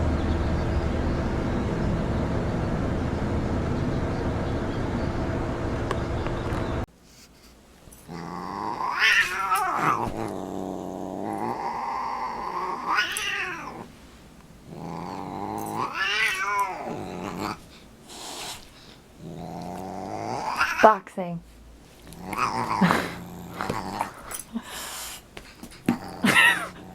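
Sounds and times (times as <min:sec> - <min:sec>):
cat yowling: 0:08.1 - 0:10.2, 0:11.4 - 0:13.9, 0:15.0 - 0:17.6, 0:20.4 - 0:20.9.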